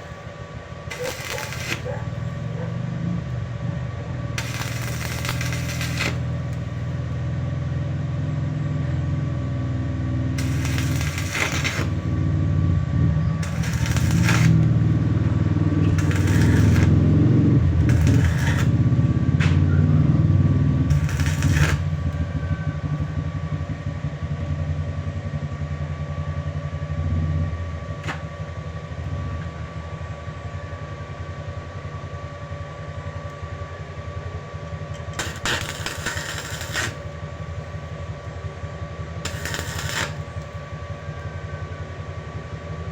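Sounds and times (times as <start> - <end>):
arc welding crackling hiss: 0.0 - 2.6, 4.4 - 7.1, 10.4 - 12.2, 13.4 - 19.0, 20.9 - 22.2, 35.2 - 37.1, 39.2 - 40.5
low electrical hum: 0.0 - 42.9.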